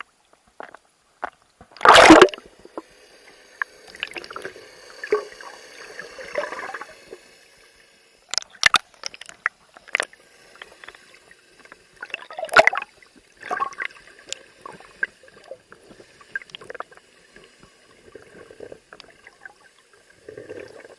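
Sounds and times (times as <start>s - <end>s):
water sloshing and gurgling: 0.6s - 7.5s, 8.3s - 20.9s
splash: 1.8s - 2.4s, 12.0s - 13.9s.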